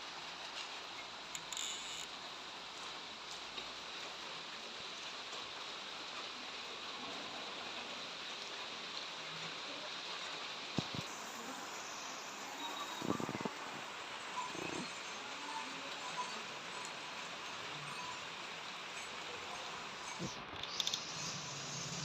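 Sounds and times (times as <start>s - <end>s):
rain falling: 0.0s - 22.0s
sharp clicks: 20.6s - 21.1s.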